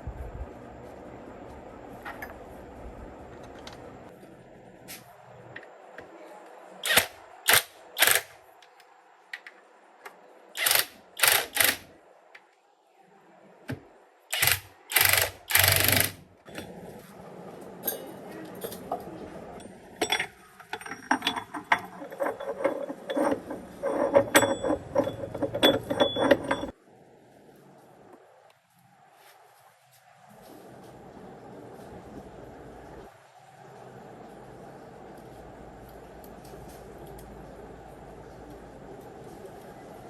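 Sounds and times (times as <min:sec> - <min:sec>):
rapid ratchet clicking: 0:06.8 - 0:08.4, 0:10.6 - 0:11.9, 0:14.3 - 0:16.2.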